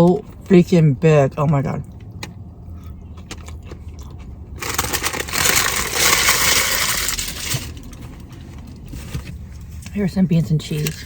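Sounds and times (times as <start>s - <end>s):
food packaging crinkling: 3.3s - 8.2s.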